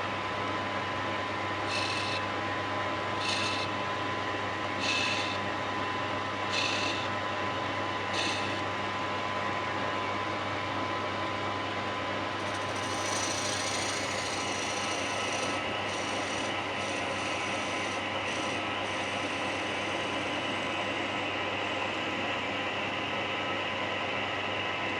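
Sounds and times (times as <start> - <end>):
lathe humming: 1.6 - 2.3, 3.2 - 3.8, 4.8 - 5.5, 6.5 - 7.1, 12.4 - 21.0
tool rubbing spinning wood: 1.7 - 2.2, 3.2 - 3.8, 4.8 - 5.4, 6.5 - 7.1, 12.4 - 20.7.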